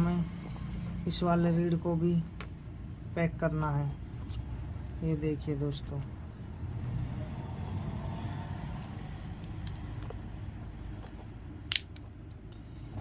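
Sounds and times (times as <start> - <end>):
plastic housing clicks: 11.0 - 12.4.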